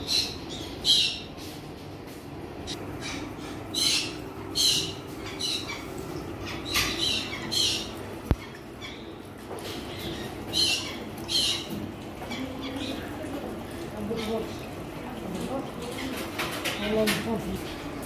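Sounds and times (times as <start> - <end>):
caged birds squawking: 0.0 - 1.9, 2.6 - 18.0
low steady hum: 0.0 - 18.0.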